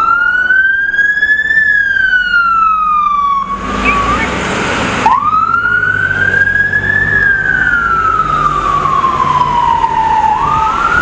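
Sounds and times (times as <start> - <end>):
emergency vehicle siren wailing: 0.0 - 11.0
traffic rumble: 0.0 - 11.0.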